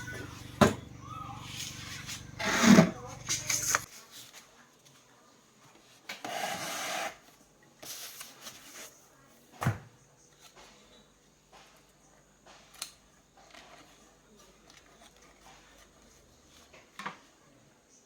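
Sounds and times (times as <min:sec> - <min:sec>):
rubbing or scraping: 0:01.3 - 0:04.4.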